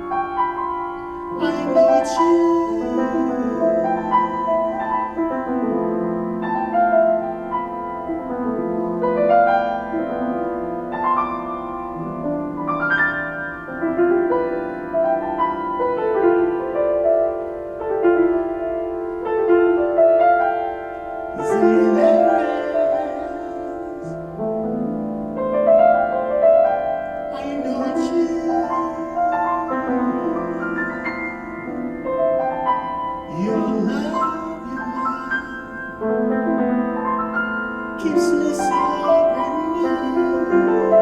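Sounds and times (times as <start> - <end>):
solo piano chords and melody: 0.0 - 41.0.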